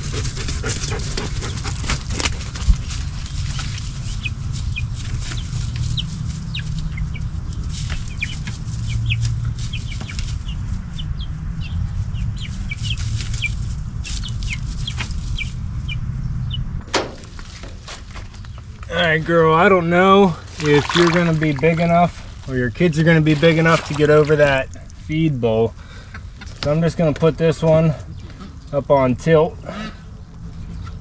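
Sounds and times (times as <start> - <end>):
chicks peeping: 0.0 - 16.7
steady low rumble: 0.0 - 31.0.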